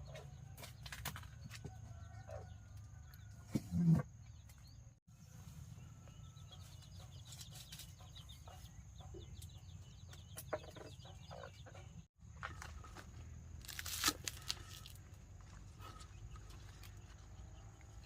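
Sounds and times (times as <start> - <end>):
chickens clucking: 6.0 - 12.8.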